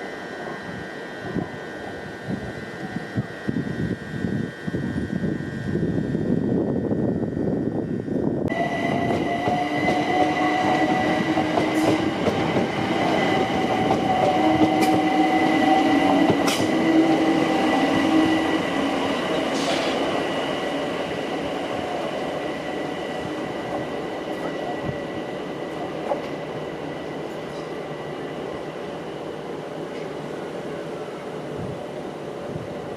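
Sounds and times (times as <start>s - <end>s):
train running past: 8.4s - 32.9s
train wheels clicking on rails: 8.5s - 27.9s.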